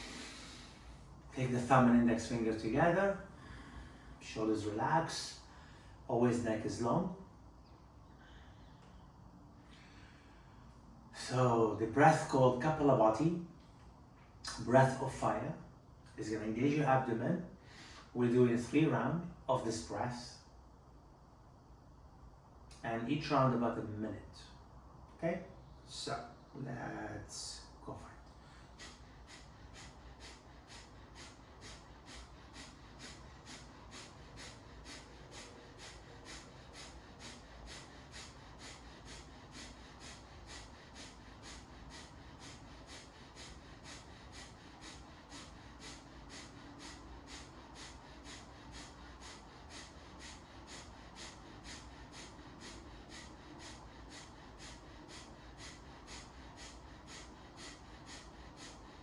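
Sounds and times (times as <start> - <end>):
forceful nasal exhalations: 0.0 - 1.2, 28.4 - 59.0.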